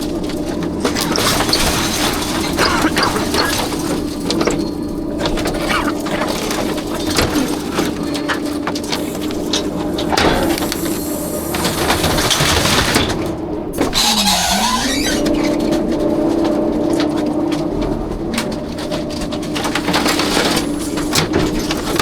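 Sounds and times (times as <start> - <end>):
garbage truck hydraulics drone: 0.0 - 17.3
metal and trash clattering: 0.0 - 22.0.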